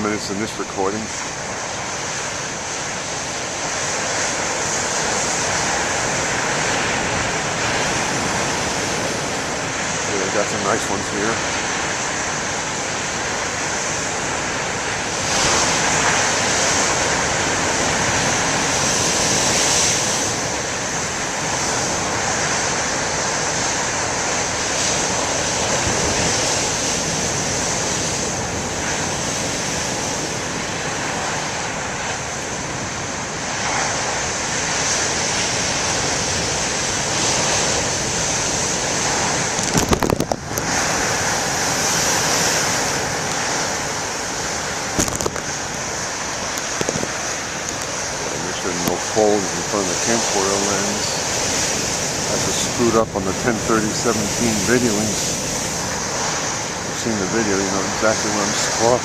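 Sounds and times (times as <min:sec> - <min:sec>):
surf crashing on rocks: 0:00.0 - 0:59.0
wind buffeting microphone: 0:00.0 - 0:59.0.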